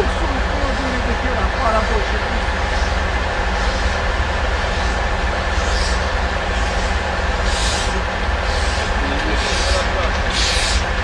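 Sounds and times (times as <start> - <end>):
steam locomotive exhaust chuffs: 0.0 - 11.0
hiss of steam: 6.6 - 10.9.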